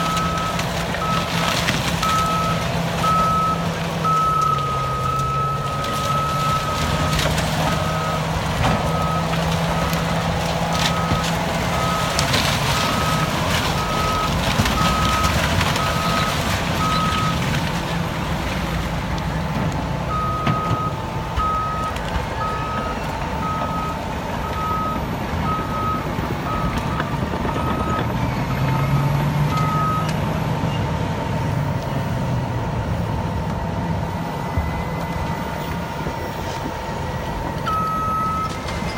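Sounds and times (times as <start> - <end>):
bulldozer diesel engine: 0.0 - 38.9
backup alarm beeping: 20.1 - 28.1, 37.6 - 38.9.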